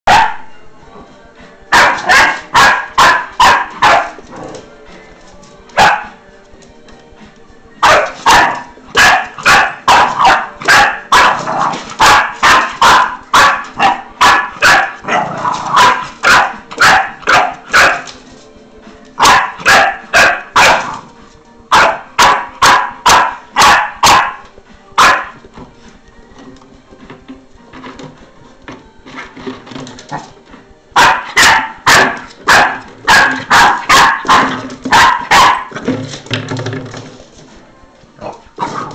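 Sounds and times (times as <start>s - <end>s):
puppy barking: 0.1s - 0.5s, 1.7s - 4.2s, 5.8s - 6.2s, 7.8s - 18.2s, 19.2s - 21.1s, 21.7s - 25.4s, 31.0s - 35.9s.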